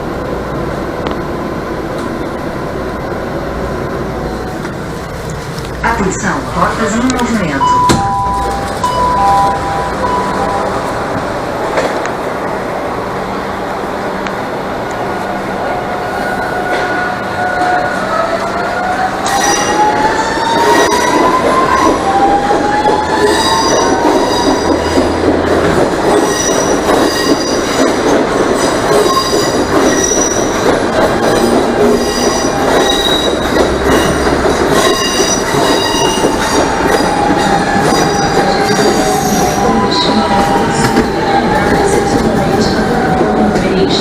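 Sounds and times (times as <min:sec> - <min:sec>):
rumble of rolling train cars: 0:00.0 - 0:44.0.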